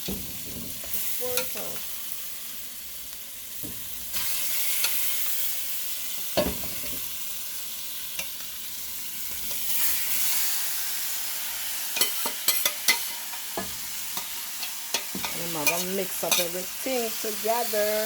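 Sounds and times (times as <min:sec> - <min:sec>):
chicken sizzling in hot oil: 0:00.0 - 0:18.0.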